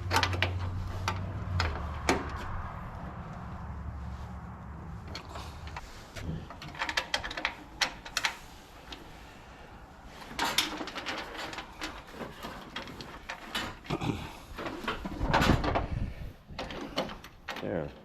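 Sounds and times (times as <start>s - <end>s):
metal bolts clicking and knocking: 0.0s - 2.6s, 5.0s - 9.1s, 10.2s - 13.9s, 14.5s - 18.0s.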